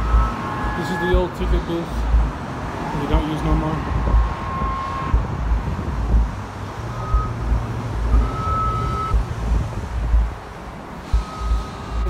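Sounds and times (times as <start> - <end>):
faint high beep: 0.0 - 1.6, 4.1 - 5.2, 6.9 - 7.4, 8.1 - 9.2, 11.0 - 12.0
road traffic passing: 0.0 - 12.0
wind buffeting microphone: 3.6 - 11.0.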